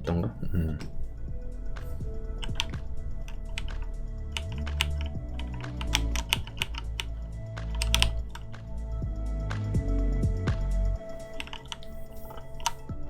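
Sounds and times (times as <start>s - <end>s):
quiet background music: 0.0s - 13.0s
keyboard keys clicking: 1.8s - 9.0s, 11.0s - 13.0s.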